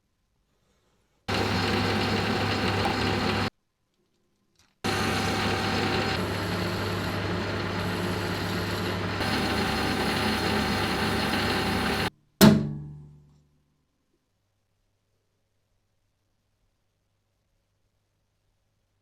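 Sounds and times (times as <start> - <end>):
electric motor humming: 1.3 - 3.5, 4.9 - 12.1.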